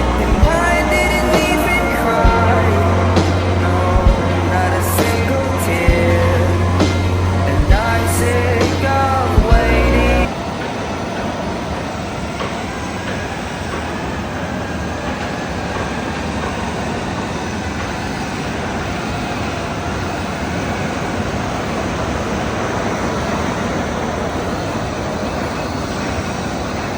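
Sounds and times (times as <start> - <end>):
steady machinery noise: 0.0 - 26.9.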